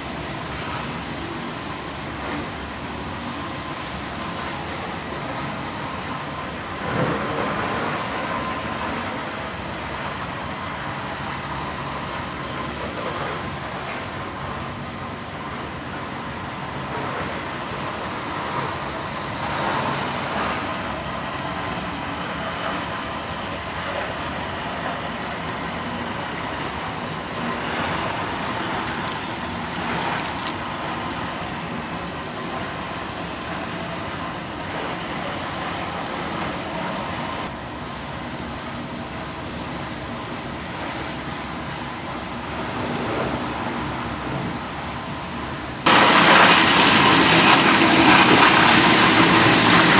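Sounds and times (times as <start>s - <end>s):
factory machinery running: 0.0s - 49.9s.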